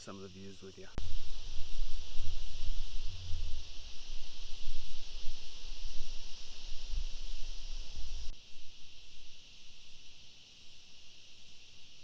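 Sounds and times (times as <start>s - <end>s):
shrill insect chorus: 0.0s - 12.0s
wind buffeting microphone: 0.8s - 8.4s.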